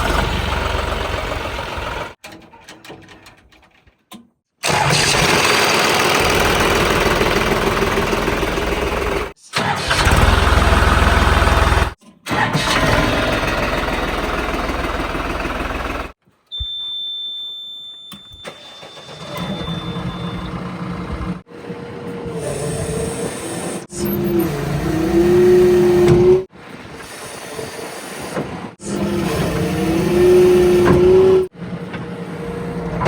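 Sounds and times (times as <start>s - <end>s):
engine revving: 0.0s - 2.2s, 4.6s - 12.0s, 12.6s - 16.2s, 22.4s - 26.5s, 28.8s - 31.5s
heavy diesel engines running: 0.0s - 2.2s, 4.6s - 16.2s, 19.0s - 26.5s.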